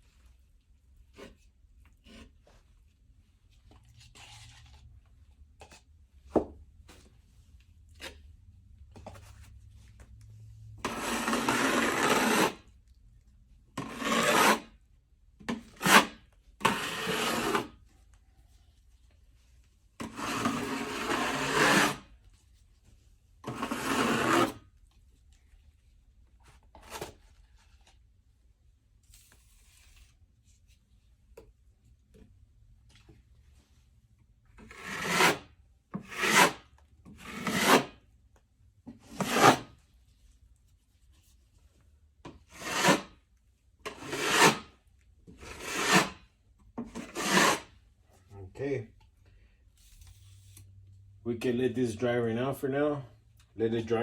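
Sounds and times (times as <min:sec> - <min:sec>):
drywall knife scraping wall: 0:10.8 - 0:12.7, 0:13.8 - 0:14.8, 0:15.4 - 0:17.8, 0:20.0 - 0:22.1, 0:23.4 - 0:24.7, 0:34.6 - 0:38.1, 0:38.9 - 0:39.8, 0:42.2 - 0:43.2, 0:43.8 - 0:47.8.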